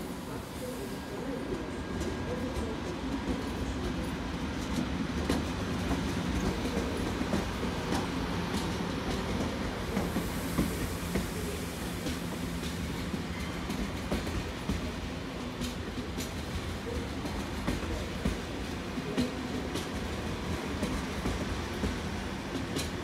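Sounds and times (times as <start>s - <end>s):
train rumble: 0.0s - 23.0s
train wheels clicking over joints: 1.5s - 23.0s.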